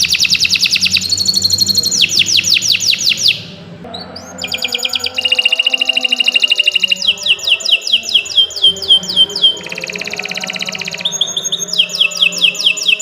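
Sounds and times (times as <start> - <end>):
canary singing: 0.0 - 13.0.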